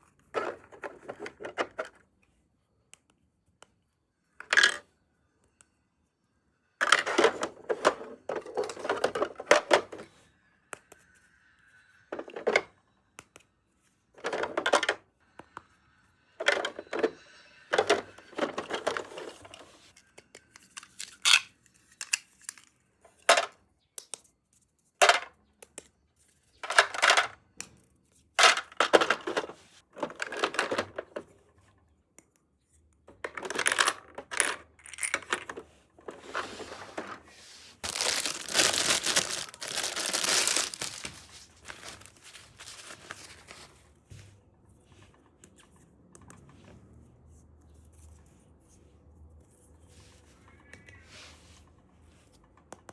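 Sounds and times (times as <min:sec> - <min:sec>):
plastic toy pieces clattering: 0:14.2 - 0:15.0, 0:16.4 - 0:19.7, 0:20.7 - 0:22.7, 0:26.6 - 0:27.4, 0:28.4 - 0:31.2, 0:33.2 - 0:36.3, 0:37.8 - 0:43.4.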